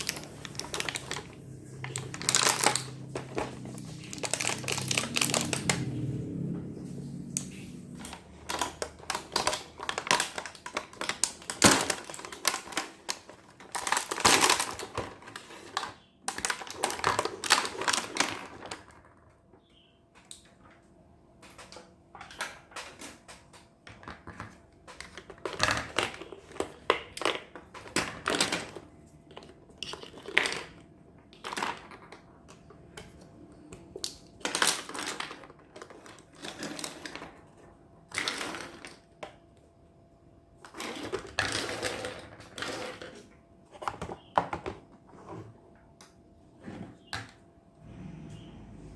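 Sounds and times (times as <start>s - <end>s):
packaging crinkling: 0.0s - 6.0s, 8.0s - 18.8s, 34.3s - 37.3s.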